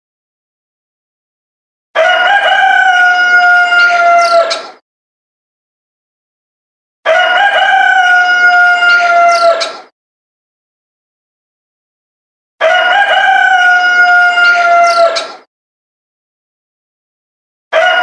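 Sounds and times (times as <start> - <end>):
rooster crowing: 2.0 - 4.6, 7.0 - 9.7, 12.6 - 15.2, 17.7 - 18.0.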